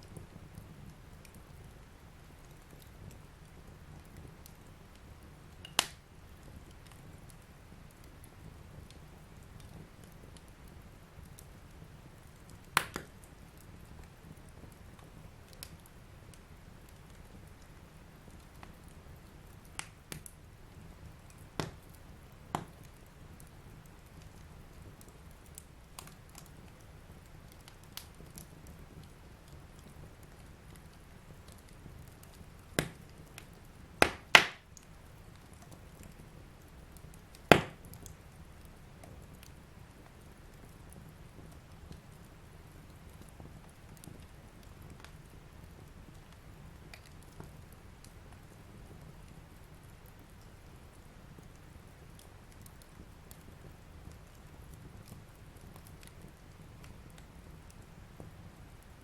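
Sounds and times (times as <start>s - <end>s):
fire crackling: 0.0s - 59.0s
loud sharp fire pops: 5.6s - 6.0s, 12.8s - 13.1s, 32.8s - 33.0s, 34.0s - 34.6s, 37.5s - 38.1s.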